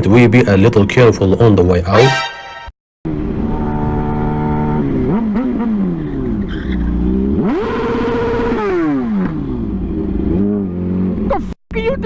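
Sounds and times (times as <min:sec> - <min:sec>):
motorcycle engine revving: 0:03.1 - 0:11.6.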